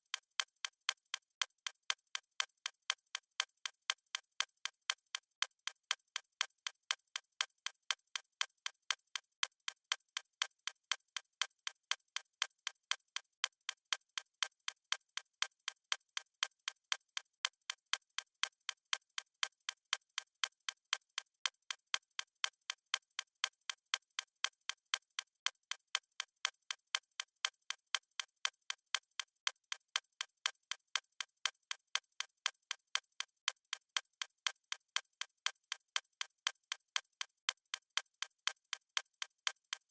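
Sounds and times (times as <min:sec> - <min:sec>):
stopwatch ticking: 0:00.0 - 0:39.9.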